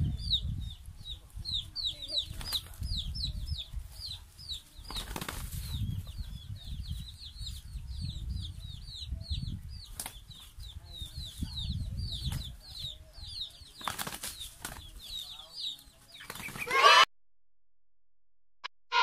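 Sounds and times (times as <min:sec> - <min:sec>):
wings flapping: 0:02.3 - 0:02.9, 0:04.8 - 0:05.8, 0:13.7 - 0:15.2, 0:16.2 - 0:16.8
hens fighting: 0:04.2 - 0:06.1, 0:13.6 - 0:17.1.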